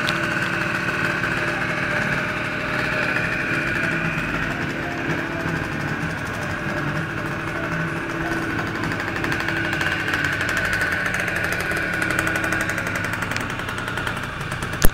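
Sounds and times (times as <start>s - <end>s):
scooter two-stroke engine running: 0.0s - 14.9s.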